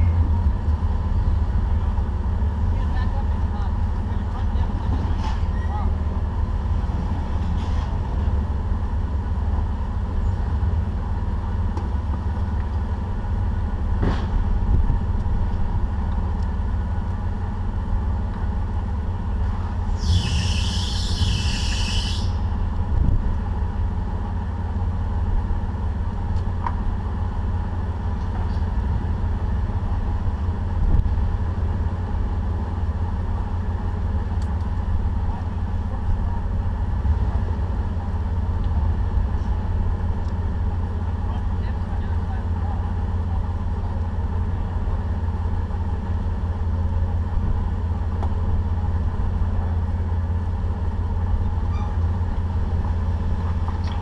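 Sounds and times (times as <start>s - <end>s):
off-road vehicle engine rumble: 0.0s - 54.0s
high squeal: 19.9s - 22.6s, 51.6s - 52.1s.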